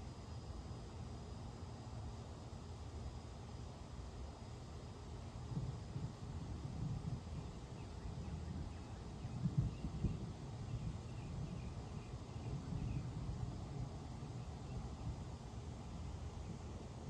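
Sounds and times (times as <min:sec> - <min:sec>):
faint high bird chirps: 0:07.7 - 0:13.2.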